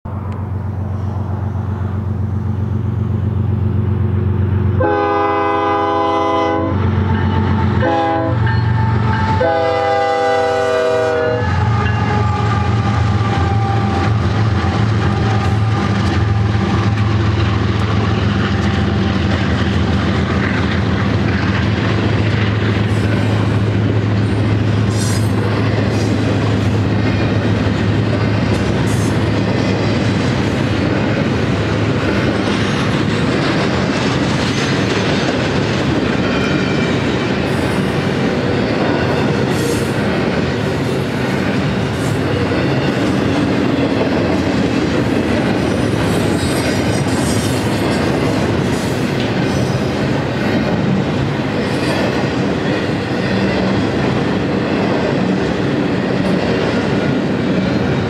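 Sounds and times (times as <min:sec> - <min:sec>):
diesel locomotive engines running: 0:00.1 - 0:58.0
train wheels rumbling and clacking: 0:00.1 - 0:58.0
locomotive air horn blasts: 0:04.8 - 0:17.0.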